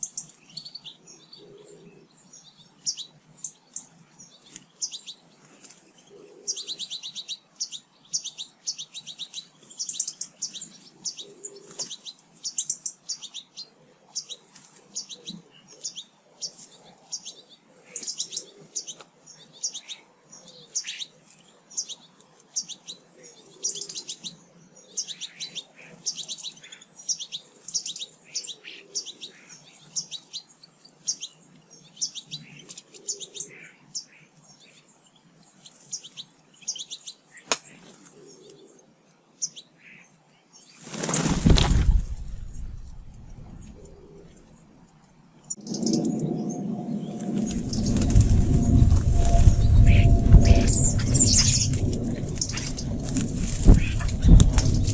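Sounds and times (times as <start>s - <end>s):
songbirds chirping: 0.0s - 54.9s.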